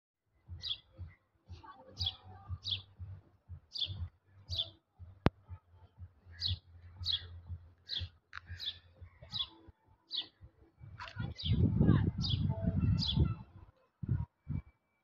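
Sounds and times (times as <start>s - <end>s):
small bird chirping: 3.7s - 4.7s, 6.3s - 9.5s
low rumble: 10.8s - 14.7s.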